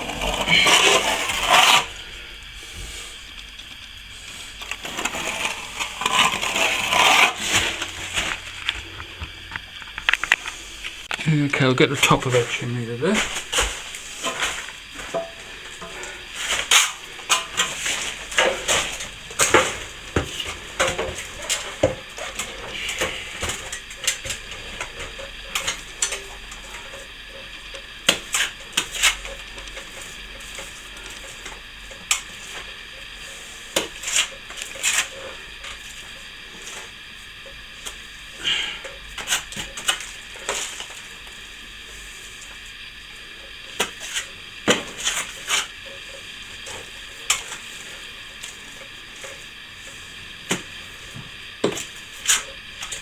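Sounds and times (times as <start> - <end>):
trowel scraping wet plaster: 0.0 - 2.1, 4.5 - 8.8.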